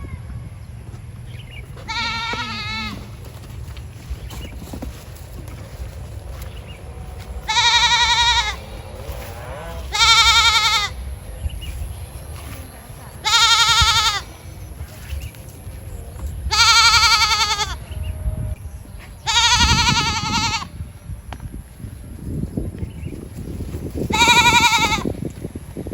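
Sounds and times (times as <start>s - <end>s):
goat bleating: 1.8s - 3.2s, 7.4s - 11.0s, 13.2s - 14.4s, 16.5s - 17.8s, 19.2s - 20.7s, 24.1s - 25.1s.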